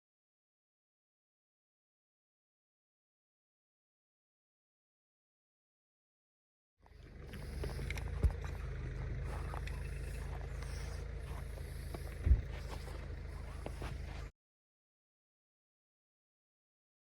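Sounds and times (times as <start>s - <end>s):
low rumble with hum: 6.8s - 14.3s.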